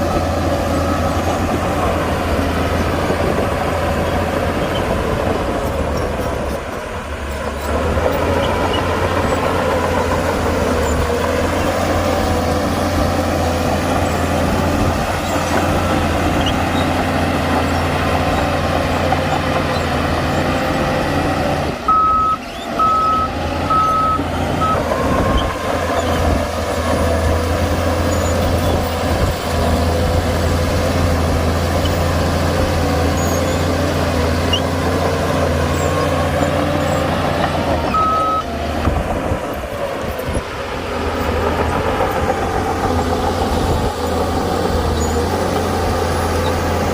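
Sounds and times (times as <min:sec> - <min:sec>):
diesel engine running: 0:00.0 - 0:46.9
reversing alarm beeps: 0:21.9 - 0:25.4, 0:37.9 - 0:38.5.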